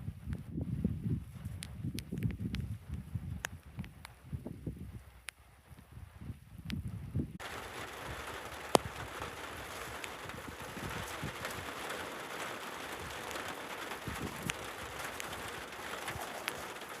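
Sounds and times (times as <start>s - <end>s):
steady rain hiss: 7.4s - 17.0s.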